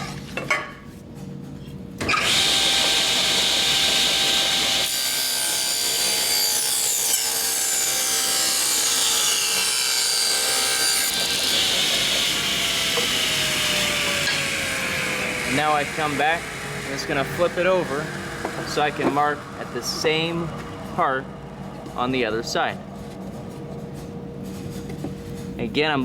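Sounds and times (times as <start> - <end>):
table saw cutting wood: 2.0 - 21.3.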